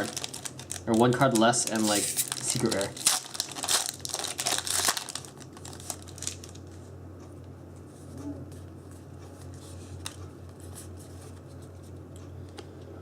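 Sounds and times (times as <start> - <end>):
foil wrapper crinkling: 0.0 - 6.8
steady low hum: 0.0 - 13.0
cards being handled: 0.9 - 3.0.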